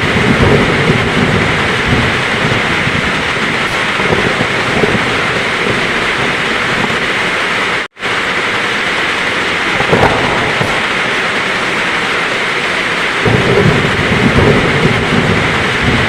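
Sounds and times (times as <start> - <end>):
low thump of thunder: 0.0 - 7.0, 9.8 - 11.3, 13.3 - 16.0
heavy rain falling: 0.0 - 16.0.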